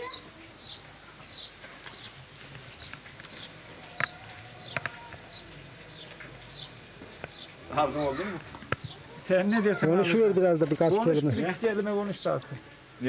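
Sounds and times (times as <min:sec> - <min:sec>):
small bird chirping: 0:00.0 - 0:09.7.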